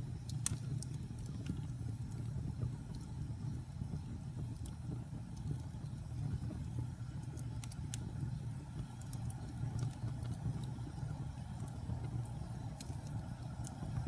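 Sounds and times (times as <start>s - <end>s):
fire crackles and pops: 0.0s - 14.0s
wood fire burning: 0.0s - 14.0s.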